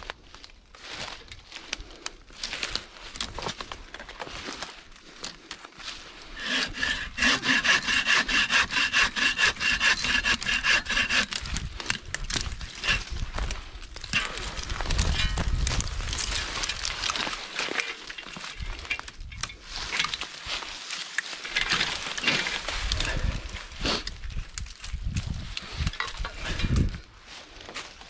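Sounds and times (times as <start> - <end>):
hand saw cutting wood: 6.4 - 13.2, 14.2 - 14.4, 21.6 - 24.0.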